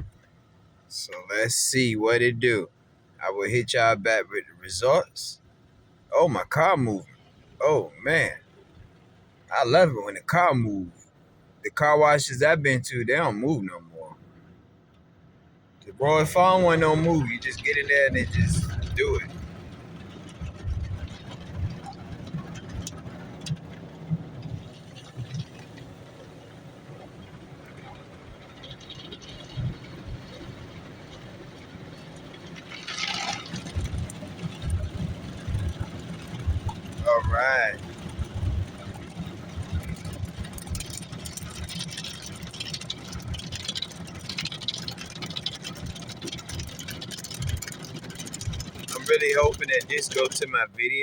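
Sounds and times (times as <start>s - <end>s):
car wash machinery rumbling: 0.0s - 14.5s, 15.6s - 51.0s.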